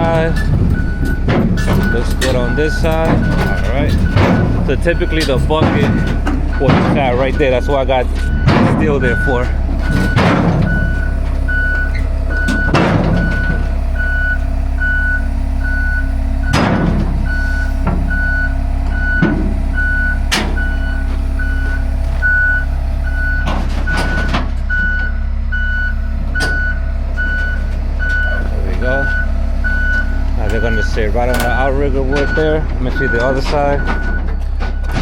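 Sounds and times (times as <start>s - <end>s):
backup alarm beeping: 0.0s - 35.0s
diesel engine rumbling: 0.0s - 35.0s.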